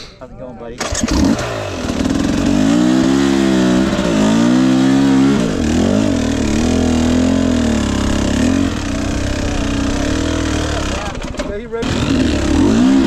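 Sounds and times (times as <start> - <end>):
dirt bike engine revving: 0.7 - 13.0.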